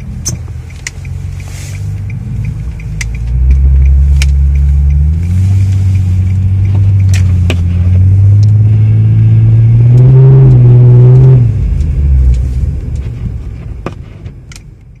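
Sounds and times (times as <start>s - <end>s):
sharp clicks: 0.0s - 8.6s
car engine hum: 0.0s - 15.0s.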